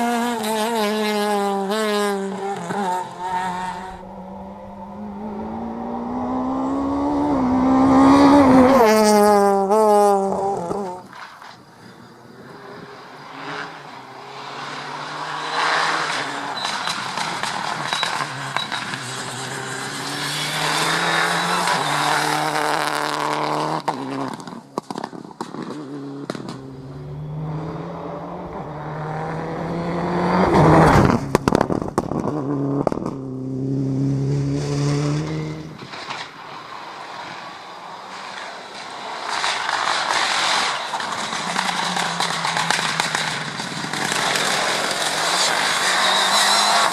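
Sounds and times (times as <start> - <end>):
rally car engine revving: 0.0 - 11.3, 12.4 - 46.9
exhaust cracks: 30.8 - 33.3, 38.1 - 46.9.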